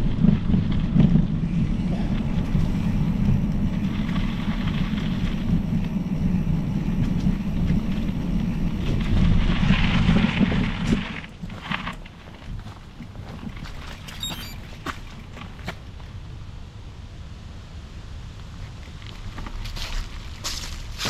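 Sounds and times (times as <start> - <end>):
wind buffeting microphone: 0.0 - 16.3.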